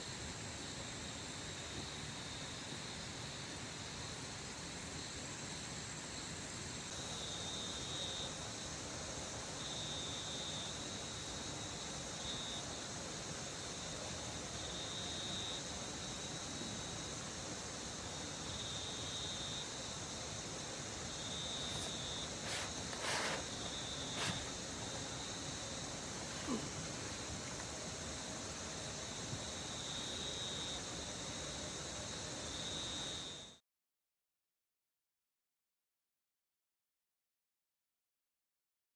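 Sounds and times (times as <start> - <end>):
rain hiss: 0.0 - 33.2
insect calling in thin bursts: 21.2 - 27.3.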